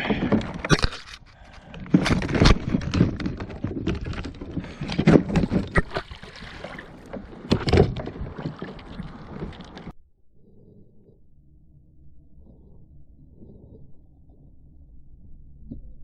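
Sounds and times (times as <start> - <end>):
knocks and scraping against kayak: 0.0 - 9.9.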